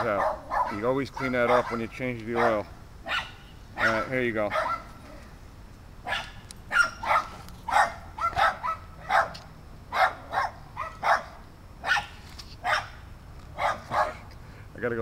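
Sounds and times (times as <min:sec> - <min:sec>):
dog barking: 0:00.1 - 0:05.0, 0:06.0 - 0:13.0, 0:13.6 - 0:14.3.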